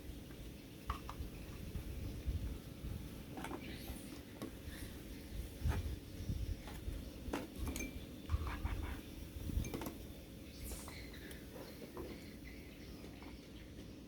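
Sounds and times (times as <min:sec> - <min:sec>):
dishes and utensils clinking: 0:07.6 - 0:09.0.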